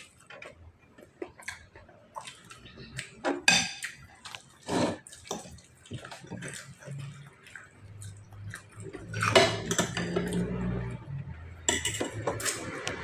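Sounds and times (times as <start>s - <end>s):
dishes and cutlery clinking: 3.2s - 7.2s, 8.0s - 10.6s, 11.6s - 13.0s.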